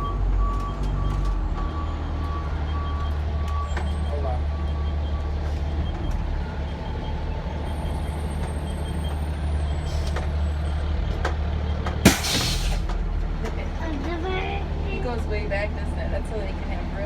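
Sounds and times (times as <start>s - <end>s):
truck engine and road noise: 0.0s - 17.0s
air brakes popping and hissing: 12.1s - 13.0s.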